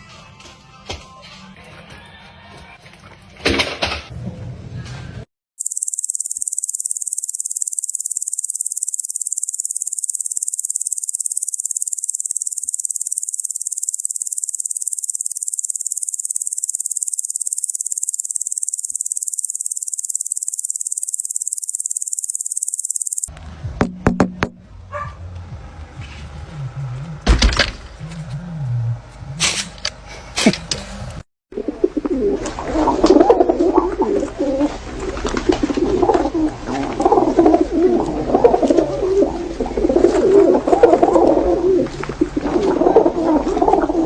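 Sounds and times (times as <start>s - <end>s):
high-pitched pulsing buzz: 5.6s - 23.3s
sharp knocks: 23.8s - 24.6s.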